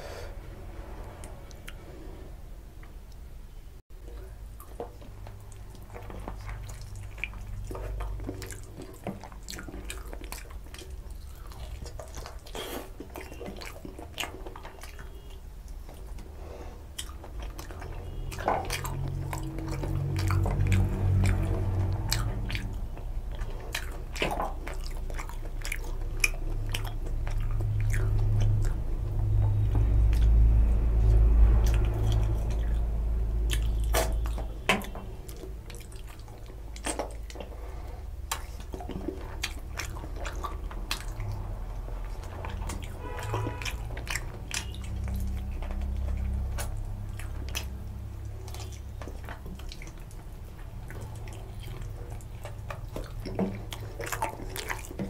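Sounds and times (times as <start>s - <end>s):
low rumble: 0.0s - 3.8s, 26.5s - 34.4s
close chewing with wet mouth smacks: 4.0s - 55.0s.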